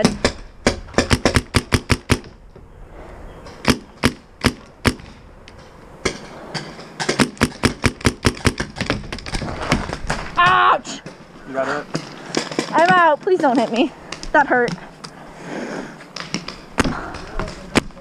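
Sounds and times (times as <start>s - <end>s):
paintball markers firing: 7.0s - 9.8s.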